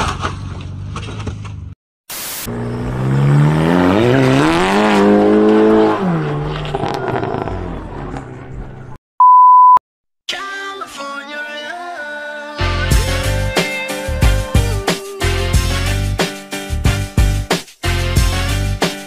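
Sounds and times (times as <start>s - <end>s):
road noise: 0.0s - 9.0s
car engine revving: 2.5s - 8.9s
steady beep tone: 9.2s - 9.8s.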